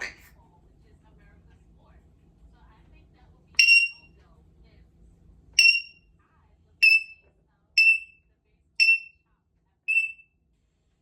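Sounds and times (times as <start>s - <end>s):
parrot mimicking high beeps: 3.6s - 4.1s, 5.6s - 6.0s, 6.8s - 7.2s, 7.8s - 8.2s, 8.8s - 9.1s, 9.9s - 10.2s.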